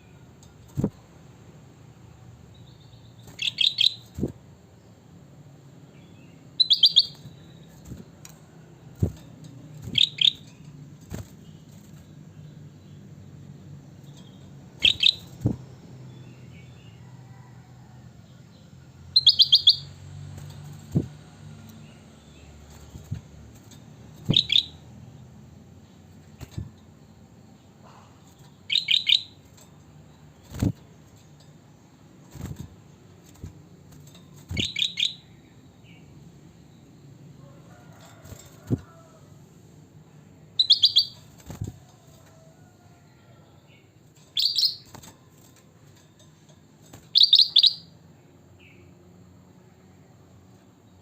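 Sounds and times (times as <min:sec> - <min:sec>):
bird chirping: 0:02.5 - 0:05.0, 0:05.9 - 0:08.1, 0:09.8 - 0:10.7, 0:11.4 - 0:17.0, 0:18.5 - 0:23.2, 0:24.1 - 0:24.8, 0:25.8 - 0:31.4, 0:34.0 - 0:37.2, 0:40.6 - 0:41.3, 0:43.7 - 0:44.9, 0:47.1 - 0:49.0.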